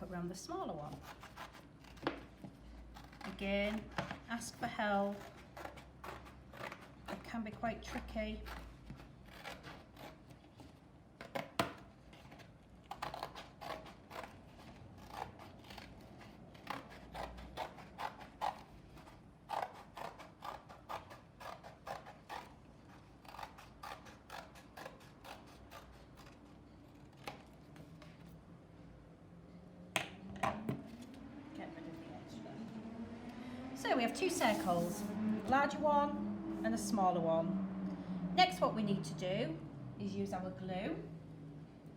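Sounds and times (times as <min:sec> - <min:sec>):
scissors snipping cardboard: 0:00.9 - 0:10.4, 0:11.2 - 0:22.5.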